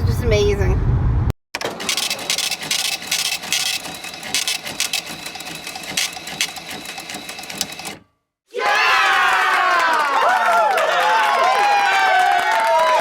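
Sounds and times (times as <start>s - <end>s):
rapid mechanical clicking: 1.6s - 8.0s.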